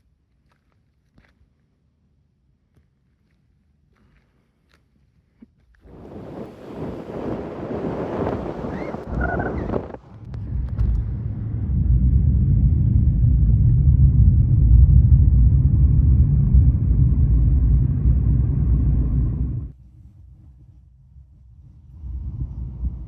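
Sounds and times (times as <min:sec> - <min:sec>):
wind buffeting microphone: 0:05.8 - 0:23.0
car rumbling on the move: 0:06.0 - 0:19.7.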